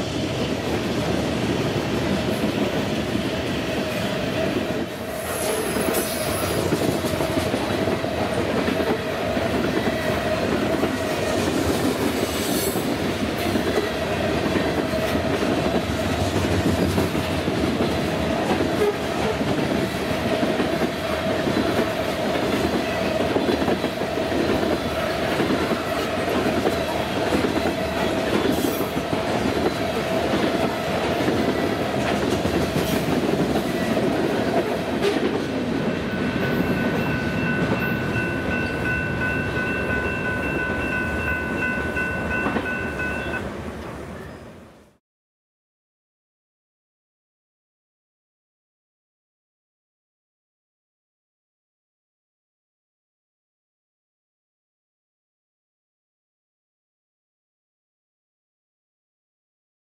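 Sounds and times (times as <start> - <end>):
train wheels clattering on rails: 0.1 - 43.4
steady ringing tone: 36.0 - 43.4.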